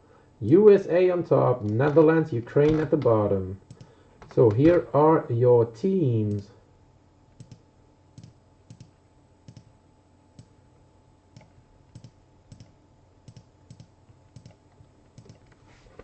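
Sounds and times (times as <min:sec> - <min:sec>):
low background hum: 0:00.0 - 0:16.0
computer keyboard clicking: 0:07.4 - 0:07.6, 0:08.2 - 0:08.9, 0:09.5 - 0:09.7, 0:11.4 - 0:12.7, 0:13.3 - 0:14.6, 0:15.2 - 0:15.5.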